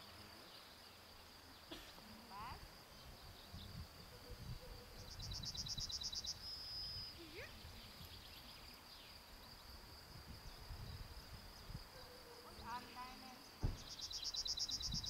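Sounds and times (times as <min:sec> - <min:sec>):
insects chirring: 0:00.0 - 0:15.0
small bird rapid high trill: 0:13.8 - 0:15.0.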